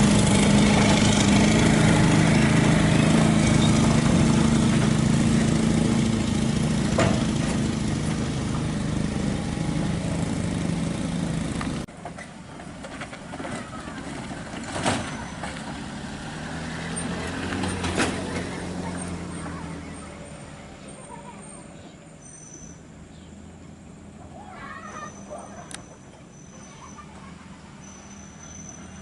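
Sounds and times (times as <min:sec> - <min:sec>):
engine running: 0:00.0 - 0:22.2.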